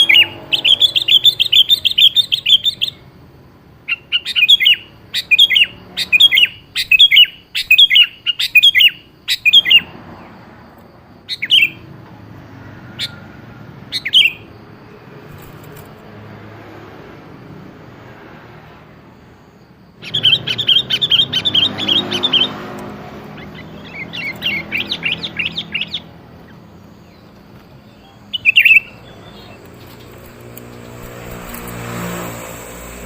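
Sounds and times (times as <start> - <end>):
bulbul calling: 0.0 - 3.1, 3.8 - 9.9, 11.3 - 11.9, 13.9 - 14.5, 20.0 - 31.7.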